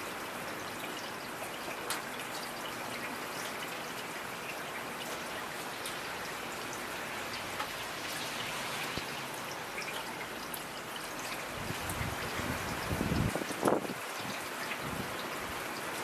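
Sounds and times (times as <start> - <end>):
loud water drips: 0.0 - 16.0
steady rain falling: 0.0 - 16.0.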